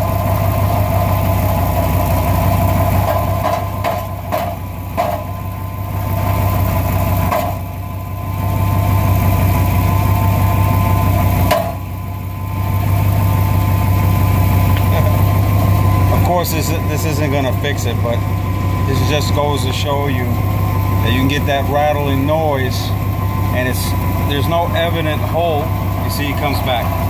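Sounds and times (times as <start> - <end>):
engine idling: 0.0 - 27.0
short metallic clatters: 2.9 - 5.5.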